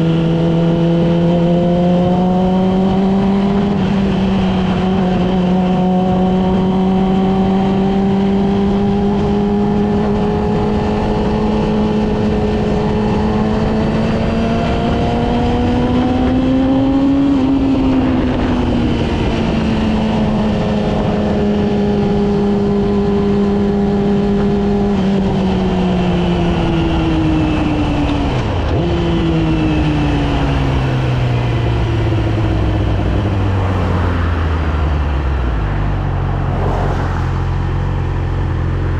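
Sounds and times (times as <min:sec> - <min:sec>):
wind and road noise: 0:00.0 - 0:38.9.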